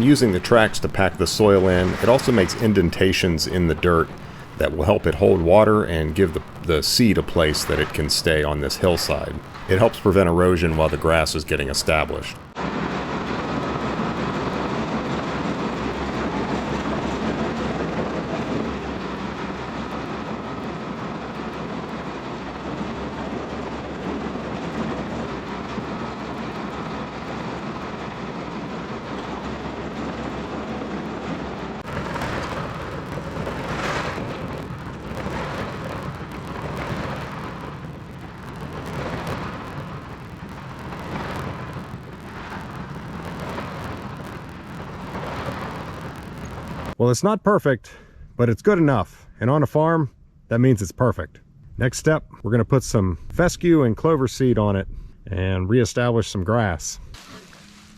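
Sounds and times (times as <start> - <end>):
steel tracks clanking: 0.0 - 45.2
tracked diesel machine running: 0.0 - 46.9.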